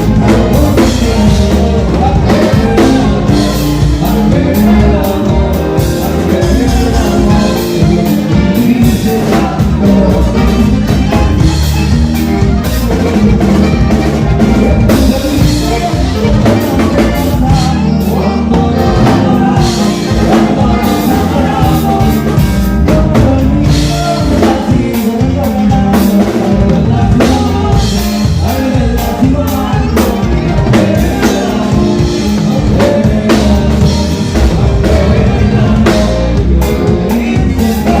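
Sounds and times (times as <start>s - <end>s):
band playing with drum kit: 0.0s - 38.0s
person singing: 0.0s - 38.0s.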